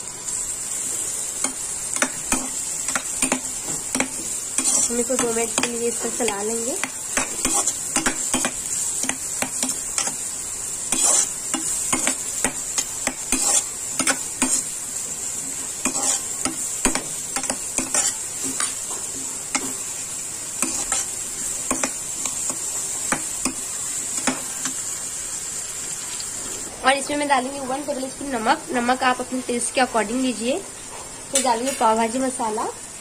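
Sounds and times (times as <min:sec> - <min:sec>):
vegetables sizzling in oil: 0:00.0 - 0:33.0
spatula scraping and knocking pan: 0:01.4 - 0:10.2, 0:10.9 - 0:14.7, 0:15.5 - 0:19.9, 0:20.6 - 0:23.6.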